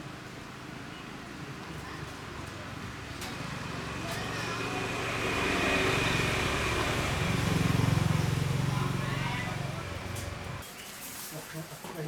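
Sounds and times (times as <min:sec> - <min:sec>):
small engine running: 0:03.8 - 0:10.6.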